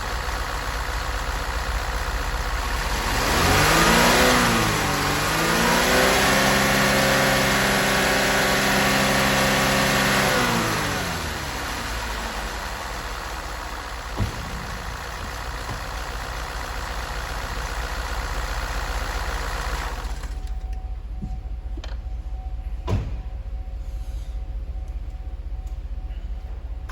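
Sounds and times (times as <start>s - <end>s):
engine revving: 2.4s - 20.5s
sharp knocks: 14.0s - 16.4s.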